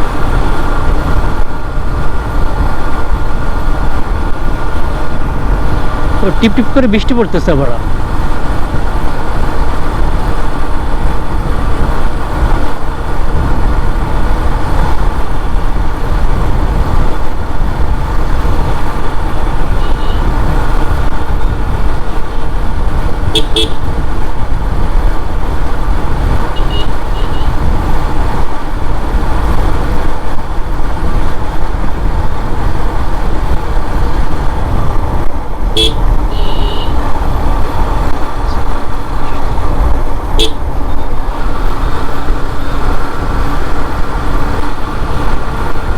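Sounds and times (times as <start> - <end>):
motorcycle engine and road noise: 0.0 - 45.9
wind rushing: 0.0 - 45.9
horn toots: 19.7 - 20.4, 23.3 - 23.9, 26.6 - 27.6, 35.7 - 37.0, 40.4 - 40.6.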